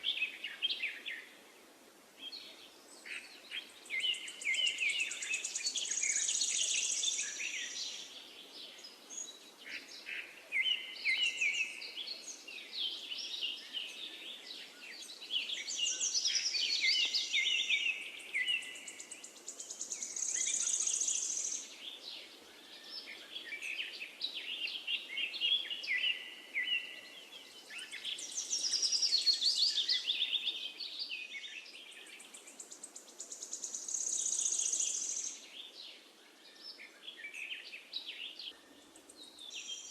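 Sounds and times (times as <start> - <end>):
faint steady hiss: 0.0 - 39.9
songbirds singing: 0.0 - 39.9.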